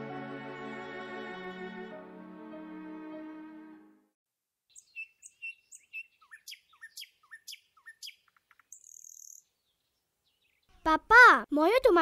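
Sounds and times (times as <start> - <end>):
buzzy bird trill: 4.7 - 9.5
small birds chirping: 4.7 - 11.2.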